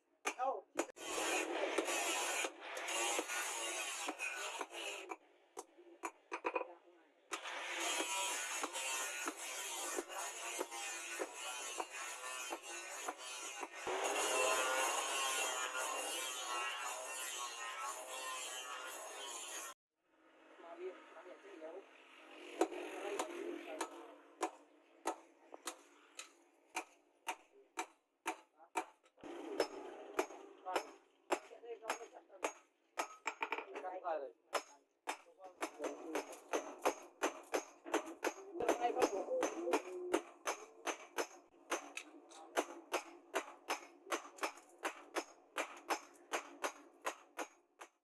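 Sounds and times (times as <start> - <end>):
hammer striking metal: 22.6 - 33.9, 34.5 - 48.0.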